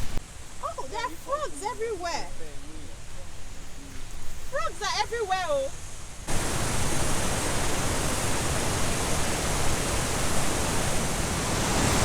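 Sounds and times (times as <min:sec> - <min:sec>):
waterfall rushing: 0:04.6 - 0:12.0.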